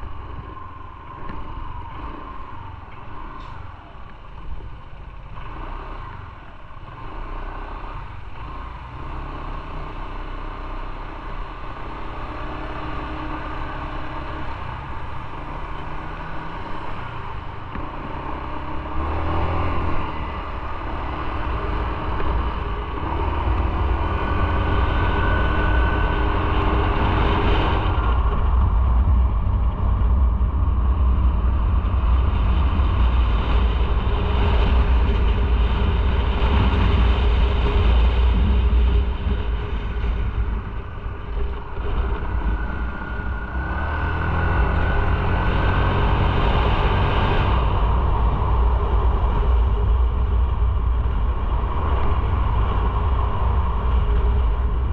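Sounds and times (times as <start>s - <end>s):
motorcycle engine running: 0.0s - 54.9s
wind and road noise: 0.0s - 54.9s.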